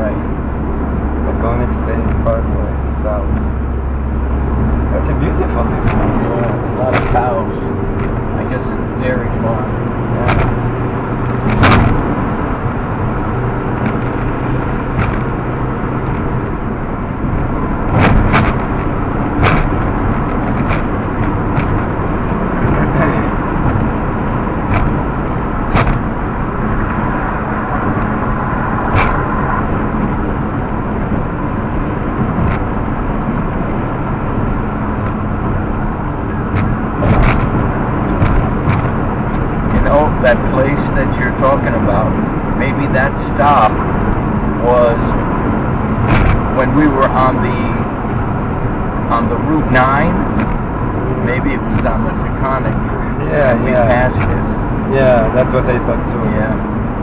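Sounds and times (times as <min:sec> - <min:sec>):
car road and engine noise: 0:00.0 - 0:57.0
sharp clicks and knocks: 0:01.8 - 0:02.3, 0:05.3 - 0:08.4, 0:09.8 - 0:33.9, 0:35.0 - 0:40.5, 0:45.1 - 0:47.3, 0:50.1 - 0:52.8.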